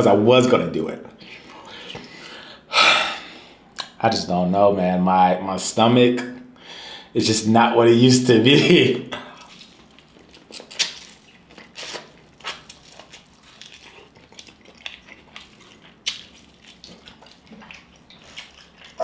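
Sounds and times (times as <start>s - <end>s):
wet chewing smacks: 9.2s - 19.0s.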